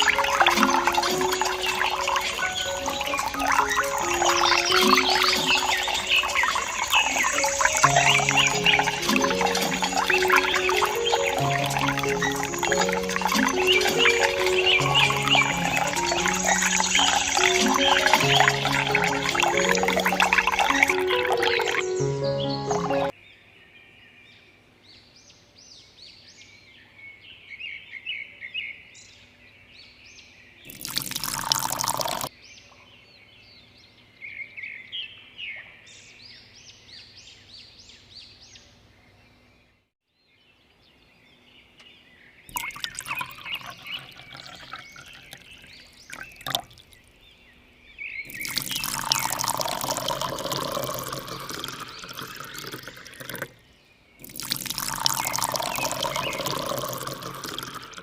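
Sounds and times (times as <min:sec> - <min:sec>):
water gushing: 0:00.0 - 0:23.1, 0:30.7 - 0:32.3, 0:42.5 - 0:47.0, 0:48.3 - 0:53.6, 0:54.2 - 0:58.0
water pouring and gurgling: 0:00.0 - 0:23.1, 0:30.7 - 0:32.3, 0:42.5 - 0:47.1, 0:48.3 - 0:53.6, 0:54.2 - 0:58.0.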